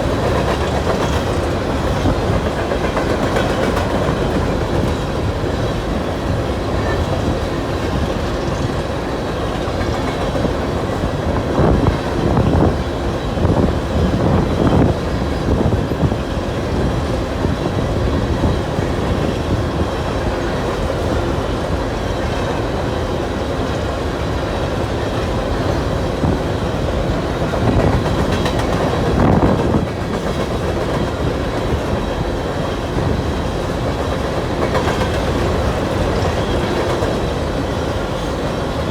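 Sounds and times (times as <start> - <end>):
steel wheels clacking over rail joints: 0.0 - 12.6, 23.6 - 38.9.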